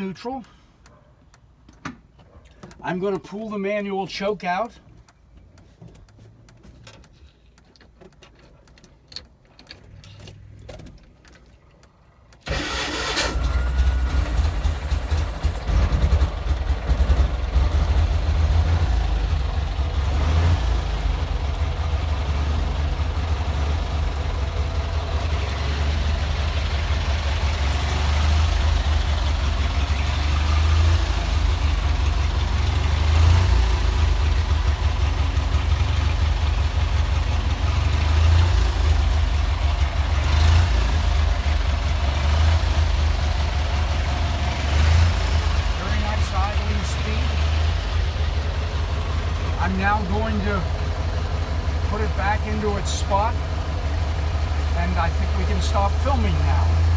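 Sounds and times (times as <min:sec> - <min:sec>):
engine starting and idling: 0:12.3 - 0:56.9.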